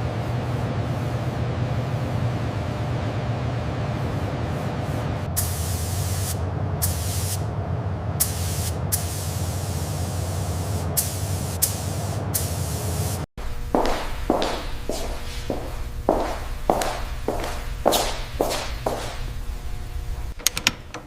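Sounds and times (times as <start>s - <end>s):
steady low hum: 0.0s - 21.0s
sprayer hissing in bursts: 5.4s - 7.4s, 8.2s - 19.6s.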